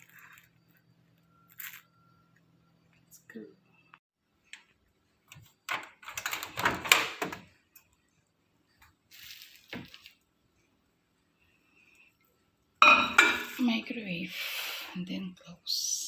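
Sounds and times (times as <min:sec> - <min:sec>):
dish clattering: 0:12.8 - 0:13.6.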